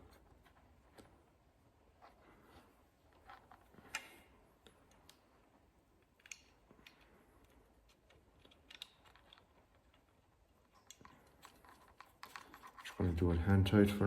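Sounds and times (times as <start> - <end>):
faint metal fittings clicking: 6.0 - 13.3.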